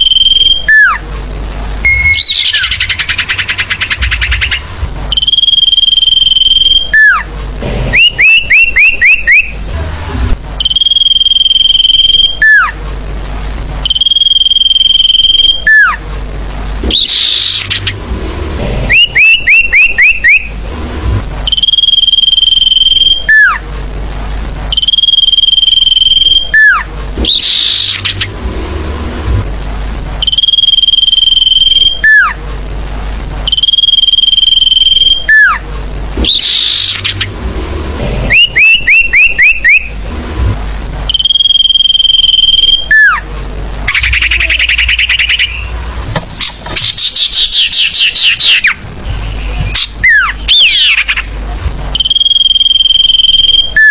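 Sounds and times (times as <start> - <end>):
bird chirps and trills: 0.0 - 1.0, 1.8 - 7.3, 7.9 - 9.7, 10.6 - 12.8, 16.8 - 18.1, 18.9 - 20.7, 21.4 - 23.6, 24.7 - 28.4, 36.2 - 37.4, 38.2 - 40.1, 43.9 - 51.4
bird whistling: 0.0 - 1.0, 1.8 - 7.3, 7.9 - 9.6, 10.6 - 12.7, 13.9 - 16.0, 16.8 - 18.0, 18.9 - 20.6, 21.5 - 23.6, 24.7 - 28.3, 30.2 - 32.4, 33.5 - 35.6, 36.2 - 37.3, 38.3 - 40.0, 41.1 - 43.2, 43.9 - 45.8, 46.8 - 51.3, 52.0 - 53.9.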